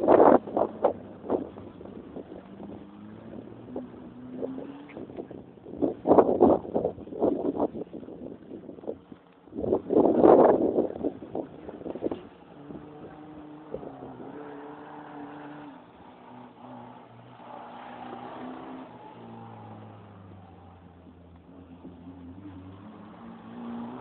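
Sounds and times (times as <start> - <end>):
car engine revving: 0.0 - 8.0, 9.6 - 24.0
wind buffeting microphone: 0.0 - 17.1.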